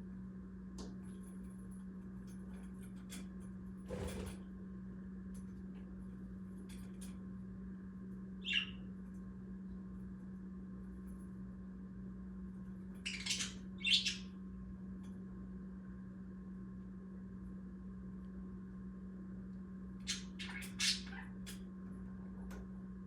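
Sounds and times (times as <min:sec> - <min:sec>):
steady low hum: 0:00.0 - 0:23.0
budgerigars chirping: 0:08.5 - 0:08.8, 0:13.1 - 0:14.2.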